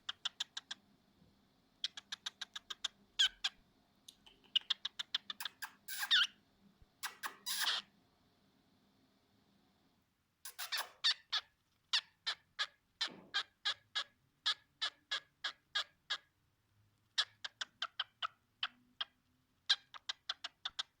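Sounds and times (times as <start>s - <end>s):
cockatiel kissing smacks: 7.0s - 7.8s, 10.5s - 11.0s.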